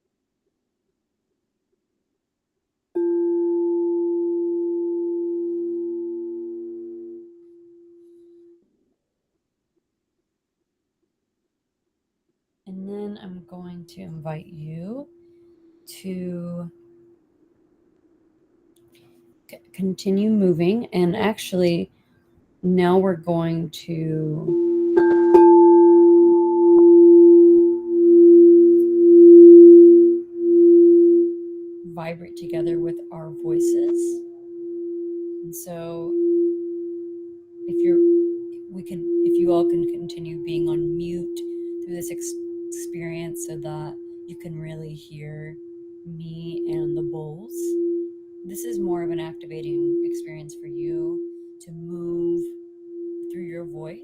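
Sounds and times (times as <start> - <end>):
singing bowl ringing: 3.0 - 8.1, 24.5 - 44.9, 45.5 - 50.5, 51.1 - 51.6, 52.4 - 53.4.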